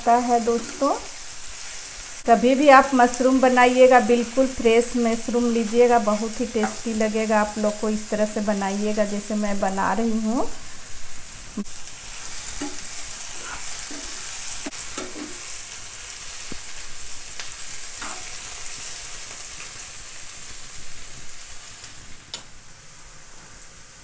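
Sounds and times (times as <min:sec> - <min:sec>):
mushrooms sizzling in hot oil: 0:00.0 - 0:24.0
spoon clinking and scraping pan: 0:06.6 - 0:06.9, 0:12.5 - 0:15.5.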